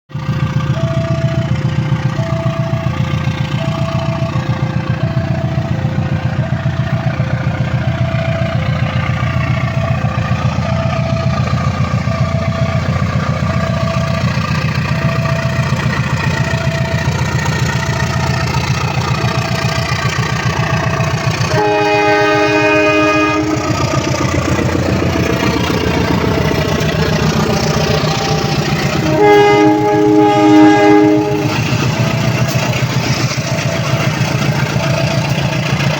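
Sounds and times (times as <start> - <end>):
diesel train rumbling: 0.1 - 35.9
two-note warning tone: 0.6 - 26.4, 27.5 - 35.7
train horn blowing: 20.6 - 24.0, 27.9 - 32.7.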